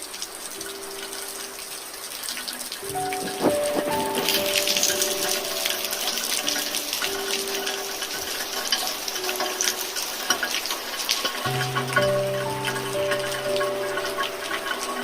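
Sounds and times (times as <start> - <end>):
rain pattering: 0.0 - 15.0
low held note: 2.9 - 6.2.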